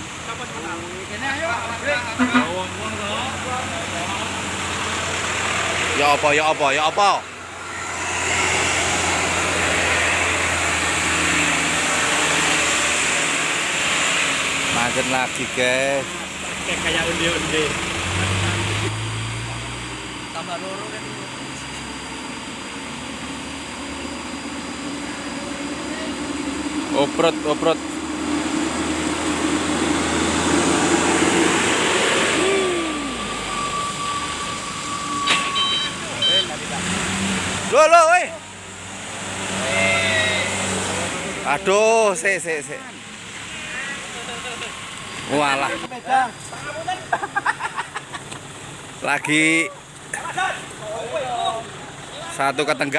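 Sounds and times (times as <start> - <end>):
diesel truck engine under load: 0.0 - 39.6, 40.5 - 52.9
thin steady whine: 0.1 - 18.1, 18.8 - 36.8.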